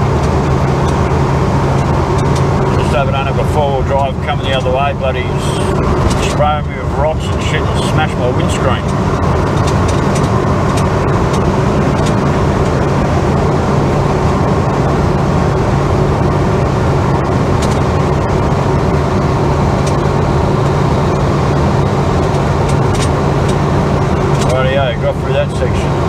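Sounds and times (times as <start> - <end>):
car engine and road noise: 0.0 - 26.0
light clicks and rattles: 24.3 - 24.8.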